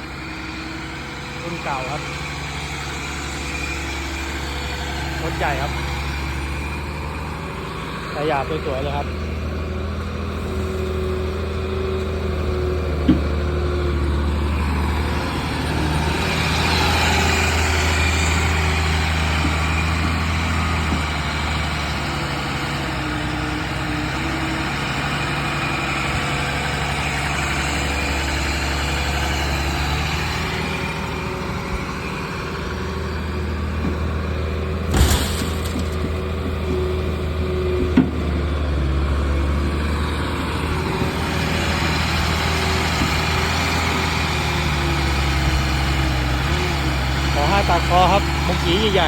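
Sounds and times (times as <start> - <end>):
excavator diesel engine running: 0.0 - 49.0
short clatter: 34.8 - 36.4.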